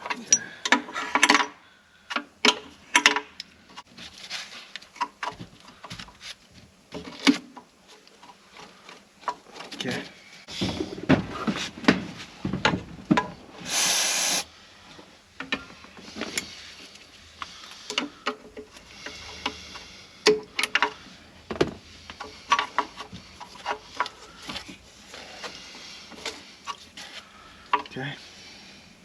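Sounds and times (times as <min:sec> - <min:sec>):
tools and parts clicking and knocking: 0:00.0 - 0:03.5
short hiss: 0:13.6 - 0:14.5.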